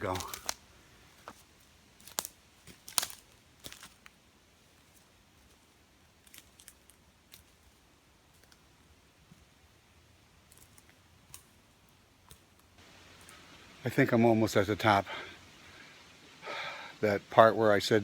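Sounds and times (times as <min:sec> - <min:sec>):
footsteps on twigs and leaf litter: 0:00.0 - 0:09.5, 0:10.5 - 0:13.8.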